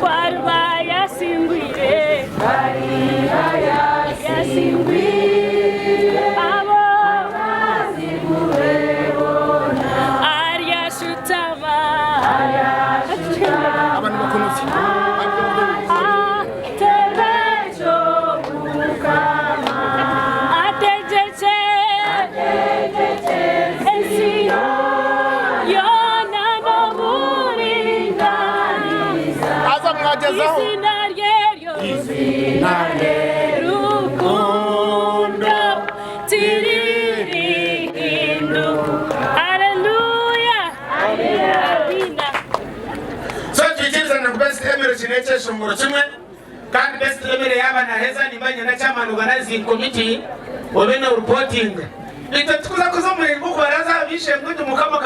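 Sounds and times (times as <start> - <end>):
choir singing in harmony: 0.0 - 42.0.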